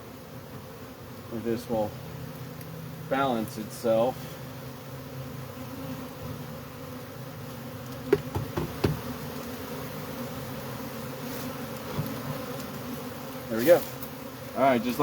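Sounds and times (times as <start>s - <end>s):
bees buzzing: 0.0s - 15.0s
short knocks: 8.1s - 9.1s.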